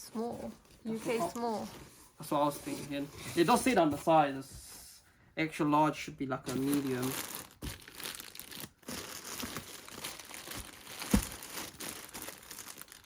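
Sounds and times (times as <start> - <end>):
packaging and clothing rustling: 6.4 - 13.0.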